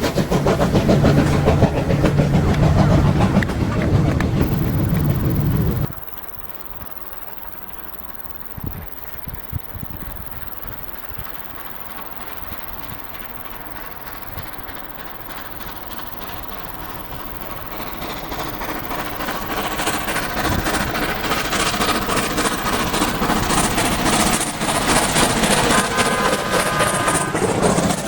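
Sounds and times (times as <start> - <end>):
train approaching: 0.0 - 28.0.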